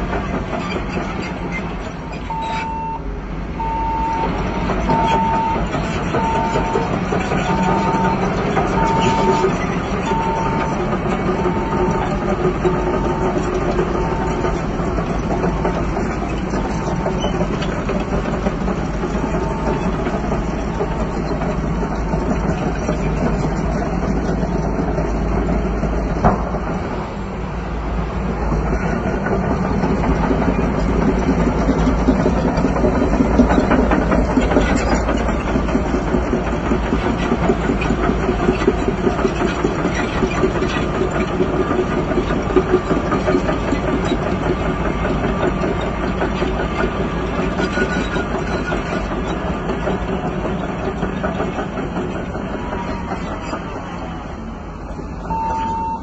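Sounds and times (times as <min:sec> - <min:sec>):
bulldozer diesel engine running: 0:00.0 - 0:56.0
backup alarm beeping: 0:02.3 - 0:03.0, 0:03.6 - 0:12.1, 0:55.2 - 0:56.0.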